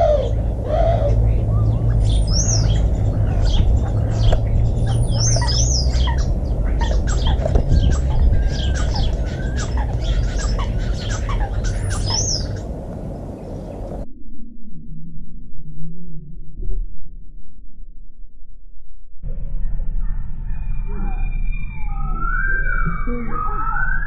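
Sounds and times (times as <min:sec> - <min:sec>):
small birds chirping: 0:00.0 - 0:14.0
steady low rumble: 0:00.0 - 0:23.7.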